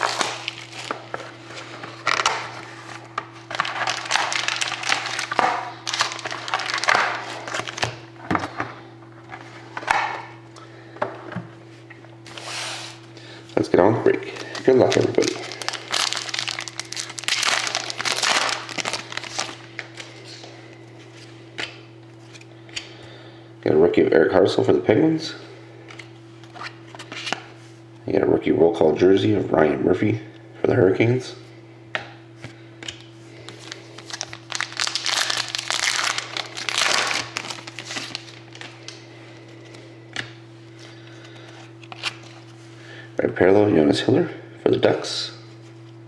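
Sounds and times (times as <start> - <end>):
wrapper crinkling and tearing: 0.0 - 1.0, 1.9 - 8.0, 14.3 - 20.1, 33.5 - 39.0
low electrical hum: 0.0 - 46.0.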